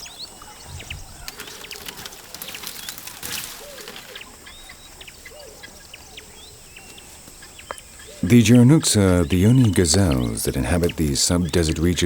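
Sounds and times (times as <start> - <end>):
birds chirping and whistling: 0.0 - 12.0
rustling: 0.5 - 4.6.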